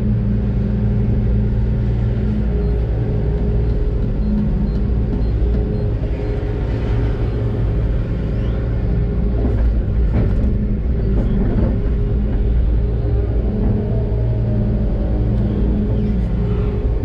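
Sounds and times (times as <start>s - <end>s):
diesel excavator engine rumbling: 0.0s - 17.0s
knocks and squeals: 3.5s - 7.6s.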